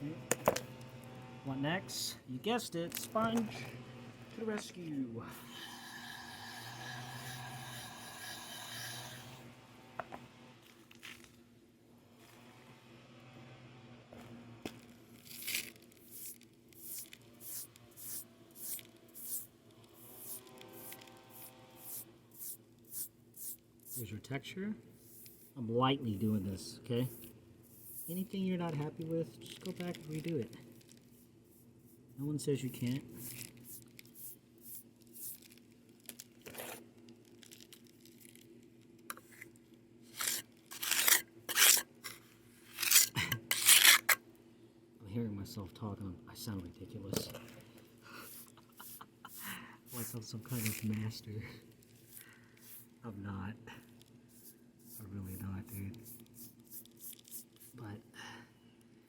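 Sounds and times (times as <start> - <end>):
sponge rubbing on concrete: 5.4 - 9.4, 15.4 - 24.1, 24.9 - 30.4, 31.0 - 35.5, 40.1 - 42.0, 42.6 - 44.2, 48.2 - 51.2, 52.0 - 53.0, 54.3 - 57.8.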